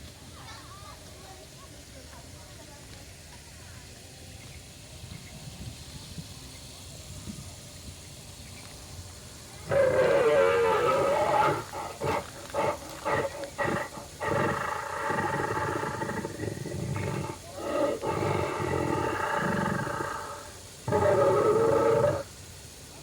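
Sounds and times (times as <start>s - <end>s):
dinosaur roaring: 9.7s - 22.3s.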